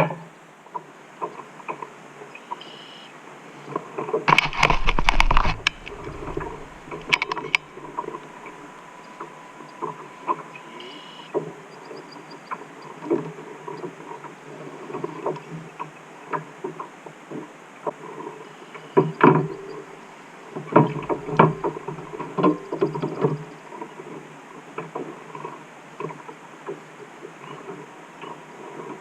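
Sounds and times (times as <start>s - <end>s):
knocks and clatter of gear handled: 4.3s - 8.3s.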